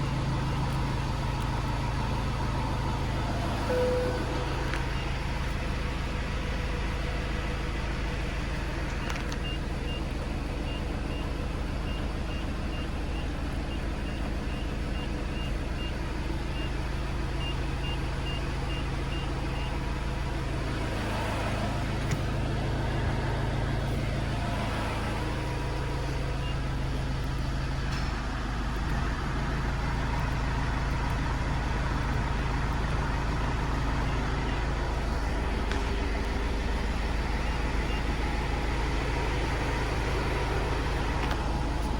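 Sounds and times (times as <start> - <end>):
diesel engine idling: 0.0 - 41.9
high electronic beeps: 3.5 - 5.2.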